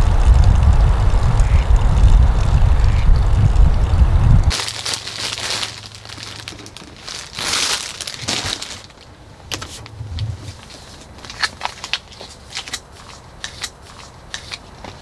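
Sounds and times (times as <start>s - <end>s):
rustling and crinkling: 4.4s - 15.0s.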